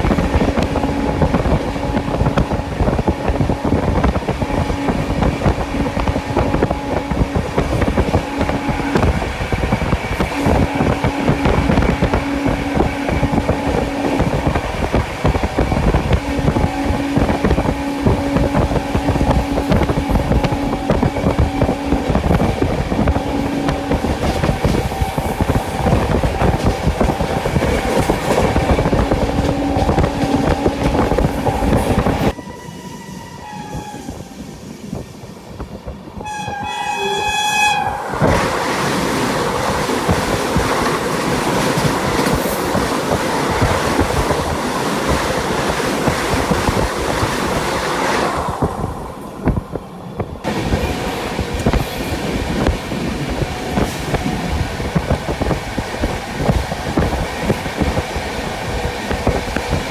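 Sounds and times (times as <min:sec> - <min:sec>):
train wheels clattering over rails: 0:00.0 - 0:32.4, 0:38.1 - 0:59.9
train horn blasts: 0:00.0 - 0:34.6, 0:36.2 - 0:49.6.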